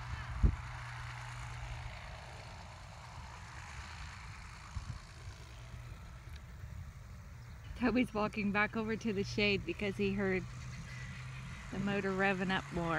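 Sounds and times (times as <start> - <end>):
helicopter engine and rotor hum: 0.0 - 12.9.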